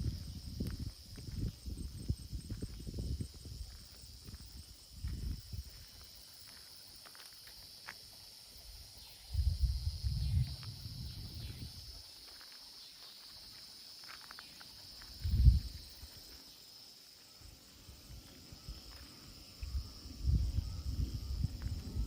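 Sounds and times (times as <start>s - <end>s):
wind gusts buffeting microphone: 0.0s - 5.9s, 9.2s - 12.0s, 15.1s - 16.1s, 17.9s - 22.0s
high-pitched insect drone: 0.0s - 22.0s.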